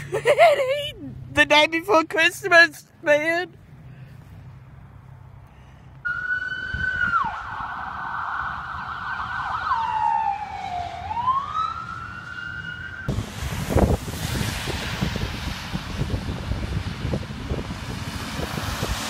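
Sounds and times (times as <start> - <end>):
emergency vehicle siren wailing: 6.0 - 13.2
wind buffeting microphone: 6.2 - 10.4, 13.1 - 19.0.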